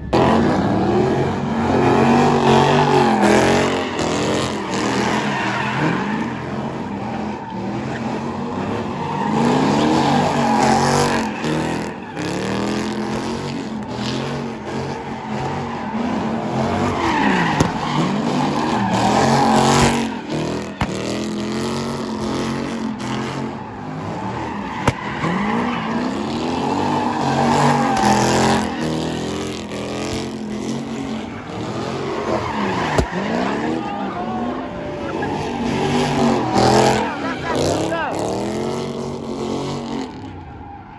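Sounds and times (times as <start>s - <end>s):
car engine revving hard: 0.0s - 40.6s
tires squealing and skidding: 0.0s - 40.9s.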